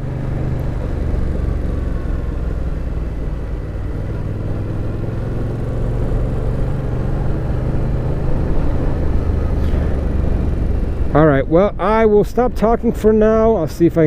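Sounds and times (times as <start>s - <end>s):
motorcycle engine cruising: 0.0s - 14.0s
rush of noise: 6.0s - 14.0s.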